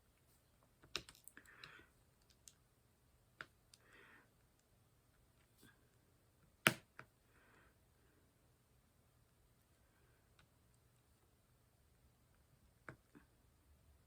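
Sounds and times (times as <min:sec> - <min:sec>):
clicks and taps of small objects: 0:00.6 - 0:02.6, 0:03.4 - 0:03.9, 0:06.6 - 0:07.1.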